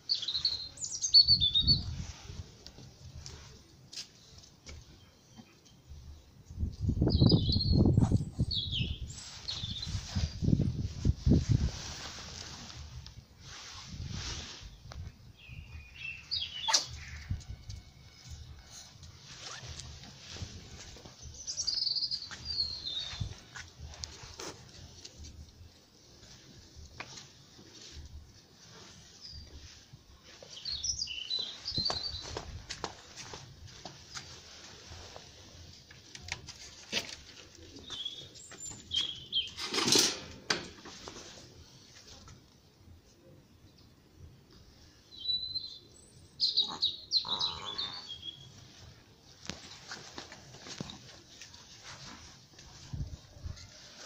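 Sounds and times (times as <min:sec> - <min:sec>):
birds chirping: 0:45.1 - 0:48.8.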